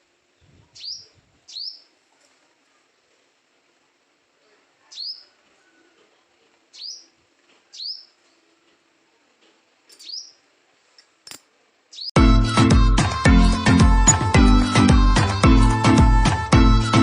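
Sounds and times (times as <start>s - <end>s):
bird upward sweeping calls: 0.8s - 1.9s, 6.8s - 7.1s, 7.8s - 8.2s, 10.0s - 10.4s.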